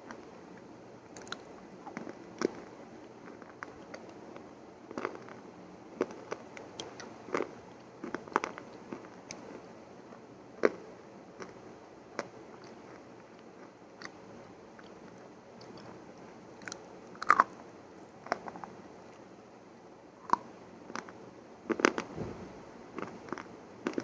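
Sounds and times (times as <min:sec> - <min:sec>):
chewing crunchy food: 0:01.1 - 0:04.2, 0:04.9 - 0:05.4, 0:16.6 - 0:17.6.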